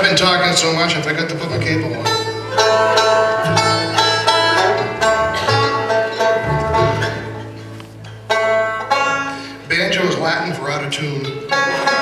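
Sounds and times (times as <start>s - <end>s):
banjo plucked and strummed: 0.0s - 12.0s
low hum: 4.4s - 8.2s.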